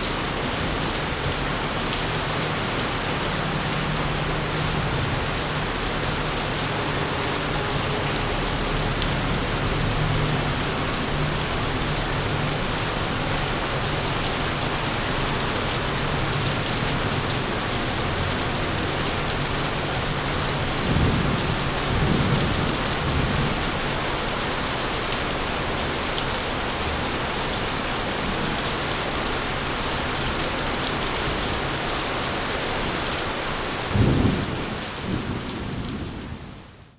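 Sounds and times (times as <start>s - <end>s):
heavy rain falling: 0.0s - 36.9s
low thunder rumble: 20.1s - 23.8s, 33.9s - 36.8s
thunderclaps: 20.7s - 23.7s, 34.0s - 36.7s.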